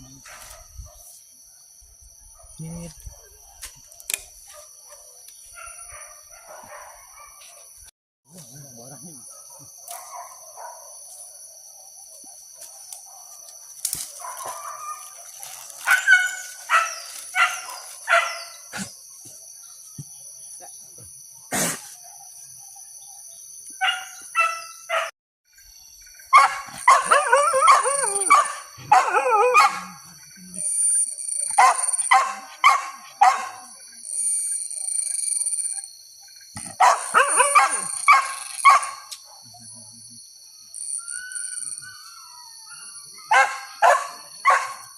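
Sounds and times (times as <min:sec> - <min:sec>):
dogs barking: 0:02.4 - 0:07.8, 0:09.3 - 0:18.9, 0:23.8 - 0:25.1, 0:26.3 - 0:30.2, 0:31.5 - 0:33.8, 0:36.7 - 0:39.6, 0:42.6 - 0:44.9.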